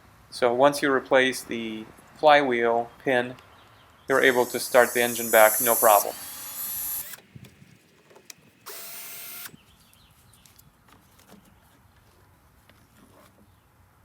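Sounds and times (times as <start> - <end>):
power drill whirring: 4.1 - 7.3, 8.6 - 9.6.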